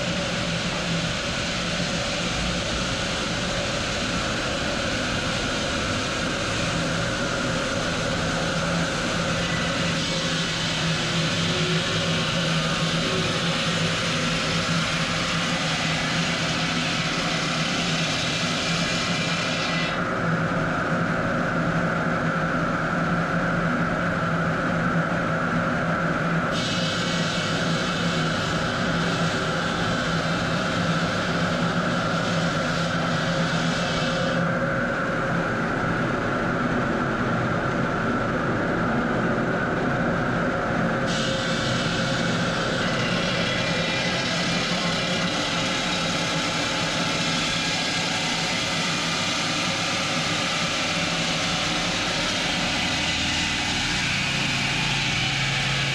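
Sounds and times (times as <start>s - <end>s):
stone-cutting machinery droning: 41.1s - 55.9s.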